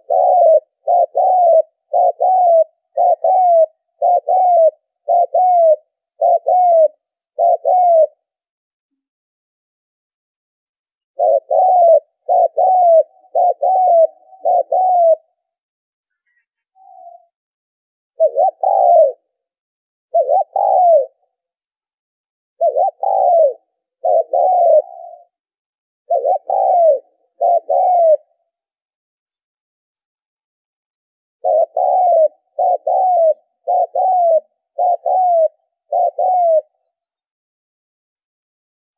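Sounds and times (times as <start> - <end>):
dove cooing: 0.0 - 8.4, 11.2 - 15.6, 16.3 - 17.4, 18.2 - 19.5, 20.1 - 21.4, 22.6 - 25.4, 26.1 - 28.6, 31.4 - 37.2.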